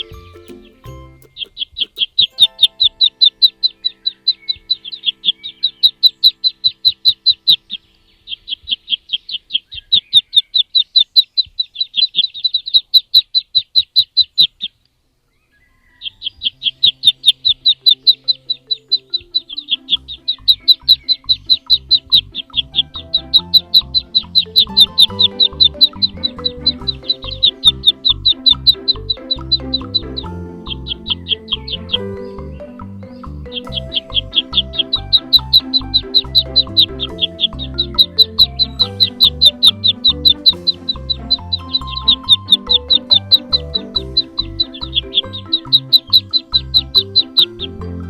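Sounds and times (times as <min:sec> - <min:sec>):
faint music: 0:00.0 - 0:09.2, 0:15.5 - 0:48.0
small bird chirping: 0:00.0 - 0:47.9.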